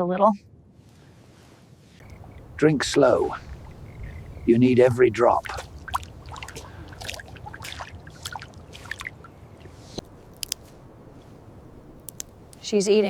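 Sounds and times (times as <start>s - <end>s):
animal lapping water: 2.0s - 12.8s
wet slurping and dripping: 4.8s - 12.7s.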